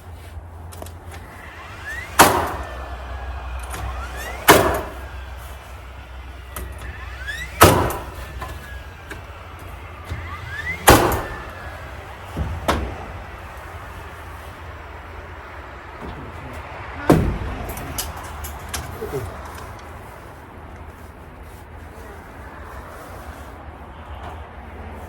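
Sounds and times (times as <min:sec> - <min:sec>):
short rising whine: 0:01.0 - 0:19.8
nail gun shots: 0:01.5 - 0:05.3, 0:06.5 - 0:08.8, 0:10.1 - 0:11.7.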